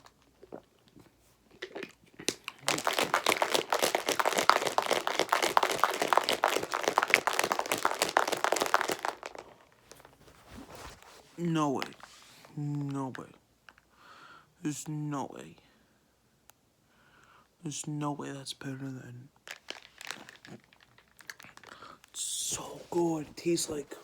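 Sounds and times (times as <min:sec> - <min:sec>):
crinkling handling noise: 0:00.0 - 0:13.9, 0:19.4 - 0:24.0.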